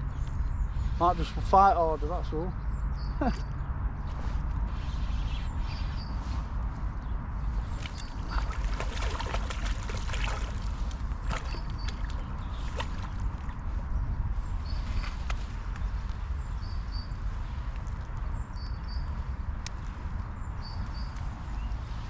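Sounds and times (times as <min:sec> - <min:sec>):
wind: 0:00.0 - 0:22.0
river water rushing: 0:08.0 - 0:11.6.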